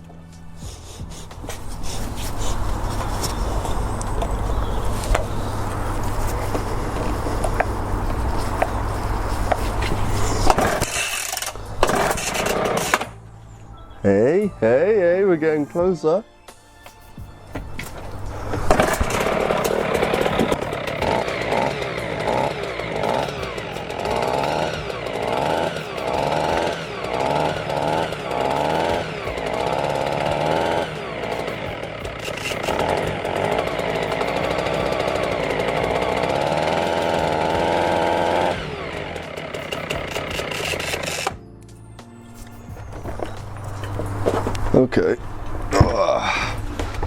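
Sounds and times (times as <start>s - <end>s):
petrol breaker running: 2.6s - 13.2s, 17.8s - 41.4s.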